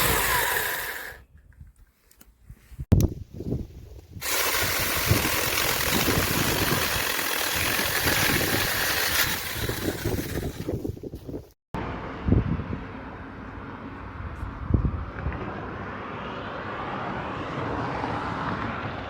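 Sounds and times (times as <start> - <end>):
mini chainsaw running: 0.0 - 1.2, 4.2 - 10.9.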